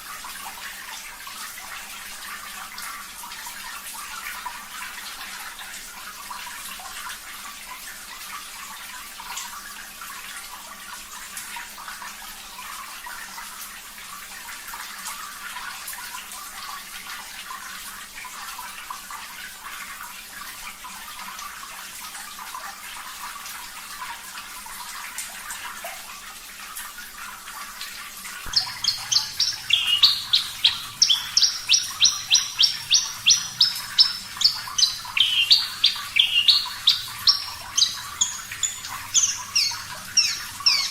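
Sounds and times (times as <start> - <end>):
running water hiss: 0.0 - 40.9
bird singing high chirps: 28.5 - 40.9.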